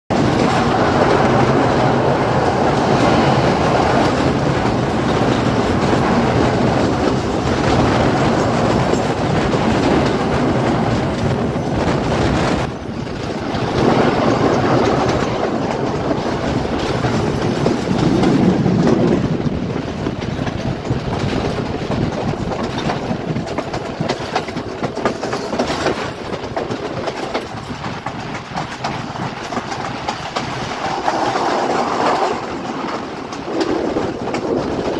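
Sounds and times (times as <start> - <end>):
passenger train crossing bridge: 0.1 - 34.9.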